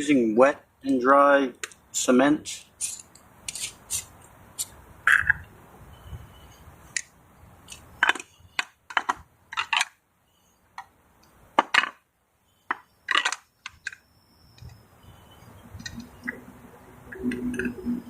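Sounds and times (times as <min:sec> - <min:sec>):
hard plastic parts clicking: 0:07.7 - 0:10.0, 0:12.7 - 0:14.0.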